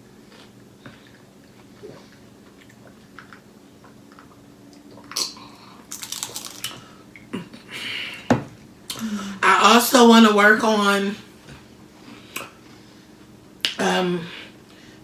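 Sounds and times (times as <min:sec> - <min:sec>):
crunching and chewing chips: 0:00.3 - 0:07.0.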